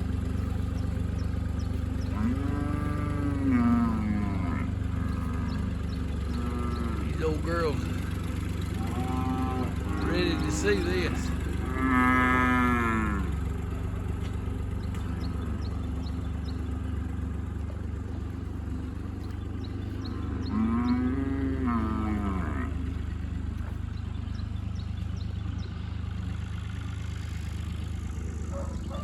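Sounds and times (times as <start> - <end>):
low engine hum: 0.0 - 29.0
cow mooing: 2.0 - 13.4, 19.9 - 22.8.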